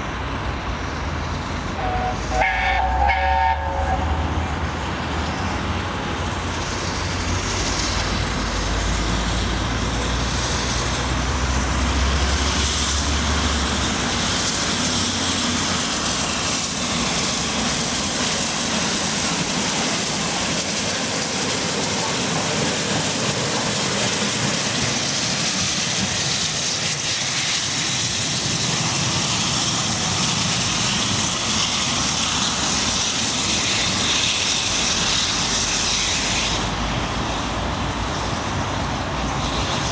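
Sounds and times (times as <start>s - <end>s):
passing train roar: 0.0s - 39.9s.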